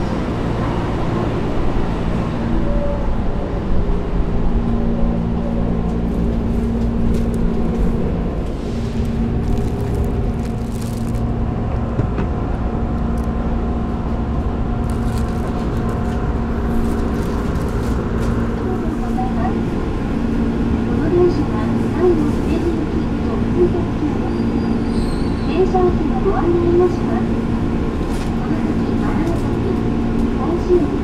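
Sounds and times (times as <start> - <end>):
low rumble: 0.0 - 22.3
train equipment hum: 0.0 - 31.0.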